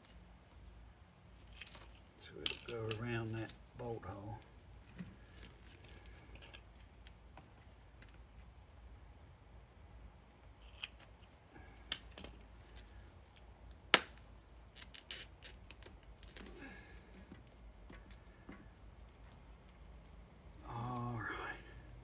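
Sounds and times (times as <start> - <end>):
small ticks: 1.4 - 3.7, 4.3 - 8.5, 10.6 - 16.5, 17.1 - 21.2.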